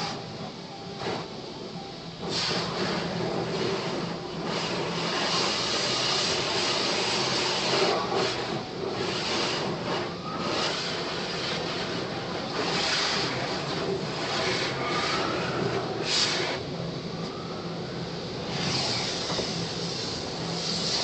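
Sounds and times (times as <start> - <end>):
car wash water spray: 2.2 - 21.0.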